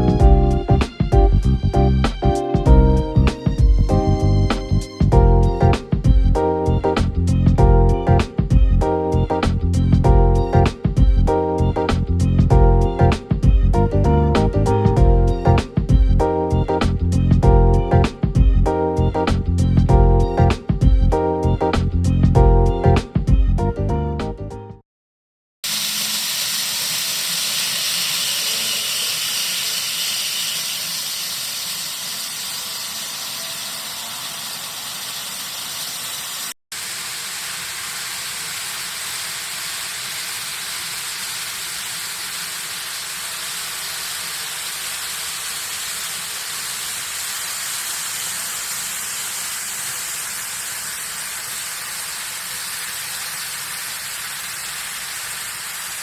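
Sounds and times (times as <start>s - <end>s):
steady hissing noise: 29.6s - 56.0s.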